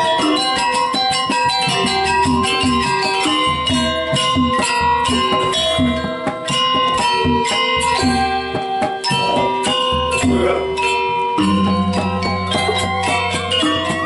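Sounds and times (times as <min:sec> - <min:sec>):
struck metal gamelan tones: 0:00.0 - 0:14.0
low drum strokes: 0:11.4 - 0:13.8.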